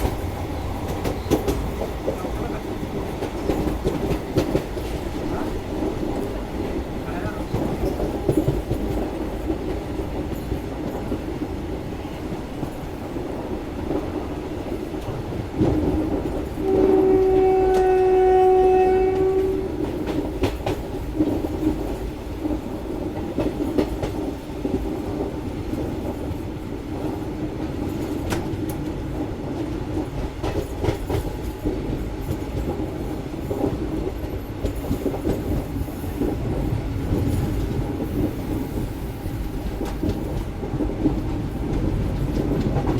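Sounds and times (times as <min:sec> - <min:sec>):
train rumbling: 0:00.0 - 0:42.9
train horn blast: 0:16.5 - 0:20.0.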